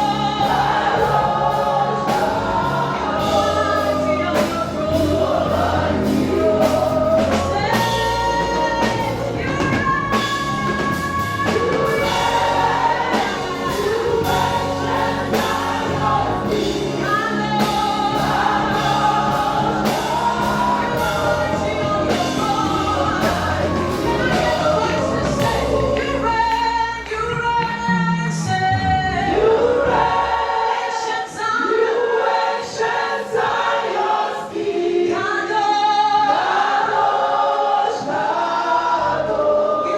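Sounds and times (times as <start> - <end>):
band accompaniment with steady beat: 0.0 - 30.3
gospel choir singing: 0.0 - 39.9.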